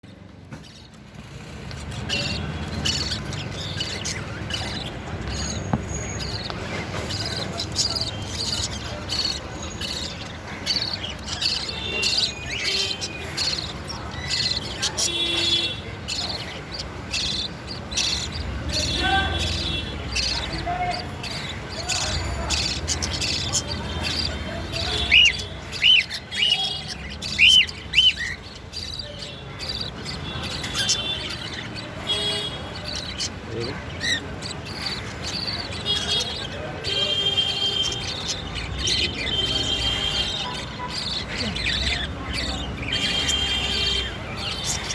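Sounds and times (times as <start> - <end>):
soft high chatter: 0.0 - 44.9
budgerigars chirping: 0.1 - 44.9.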